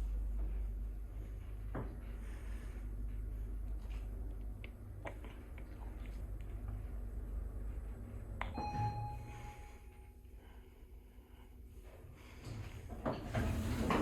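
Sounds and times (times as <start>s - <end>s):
elevator running hum: 0.0s - 5.6s, 6.2s - 14.0s
elevator arrival chime: 8.5s - 10.1s.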